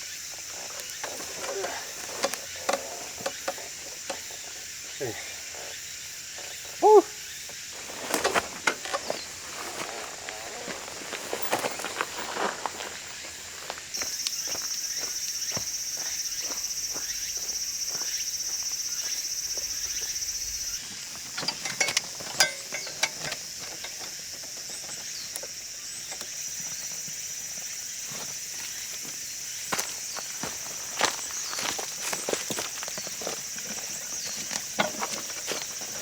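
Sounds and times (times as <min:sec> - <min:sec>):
insects droning: 0:00.0 - 0:36.0
footsteps: 0:07.7 - 0:23.8.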